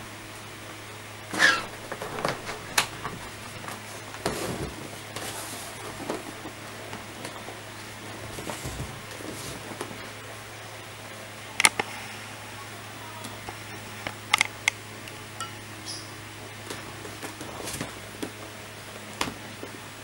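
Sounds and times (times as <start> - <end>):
steady low hum: 0.0 - 20.0
loud scrape: 1.3 - 3.4
clicks taps and rustles: 1.7 - 10.1.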